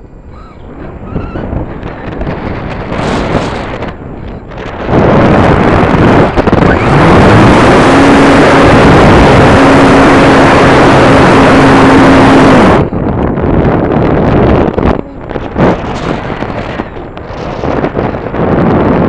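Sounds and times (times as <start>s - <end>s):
loud wind rush over microphone: 0.0s - 19.0s
model airplane motor whine: 6.4s - 12.9s.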